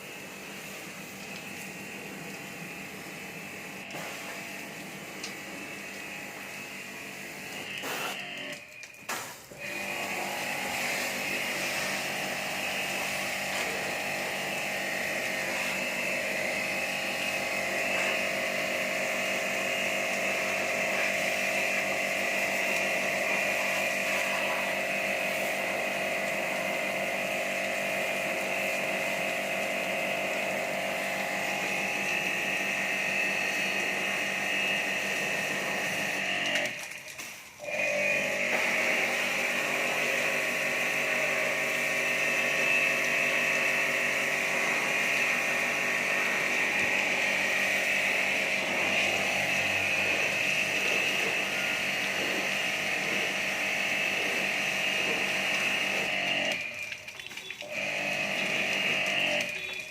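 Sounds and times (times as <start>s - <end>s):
small electric motor whining: 5.4s - 27.6s.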